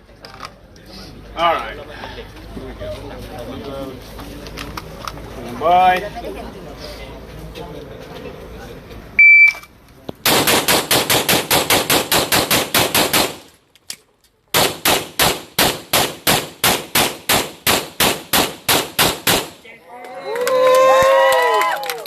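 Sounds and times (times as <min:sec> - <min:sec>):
shot timer beep: 0:09.2 - 0:09.7
rapid pistol shots: 0:10.2 - 0:13.6, 0:14.5 - 0:19.7.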